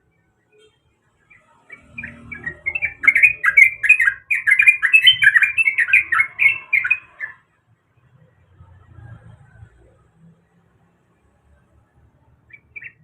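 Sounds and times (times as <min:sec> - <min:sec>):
bird singing bending notes: 0:01.2 - 0:07.5, 0:12.5 - 0:13.0.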